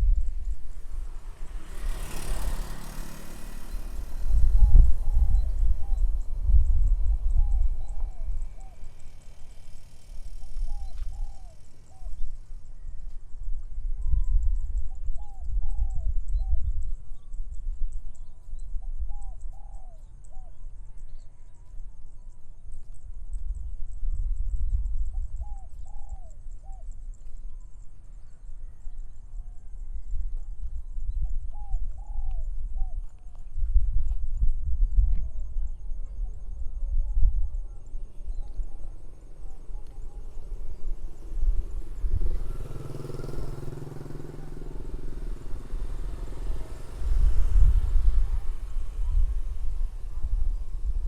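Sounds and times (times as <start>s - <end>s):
small motorcycle engine passing: 0.0s - 22.4s, 37.6s - 51.0s
wind rumbling on microphone: 0.0s - 51.0s
bird calls: 0.4s - 13.2s, 25.0s - 30.1s.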